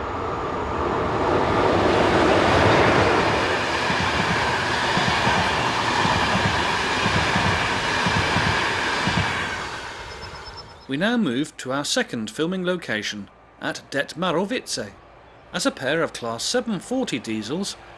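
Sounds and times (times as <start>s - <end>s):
train wheels clattering over rails: 2.4s - 10.6s.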